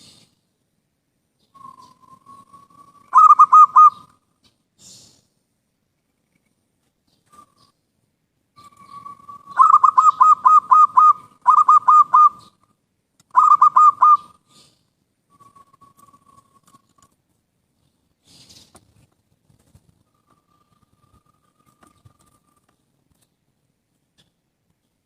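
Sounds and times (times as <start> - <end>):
dove cooing: 1.6 - 4.1, 8.6 - 12.6, 13.3 - 14.4.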